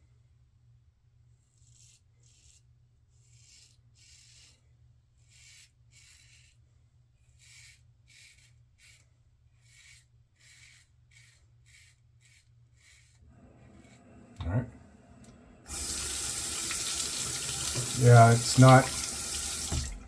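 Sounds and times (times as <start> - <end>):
razor scraping beard stubble: 1.5 - 4.6, 7.3 - 13.2, 15.7 - 19.9.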